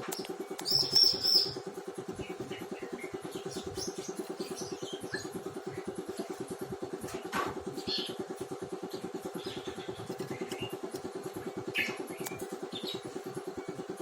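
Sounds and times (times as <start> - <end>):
small engine running: 0.0 - 14.0
bird chirping: 0.1 - 1.6.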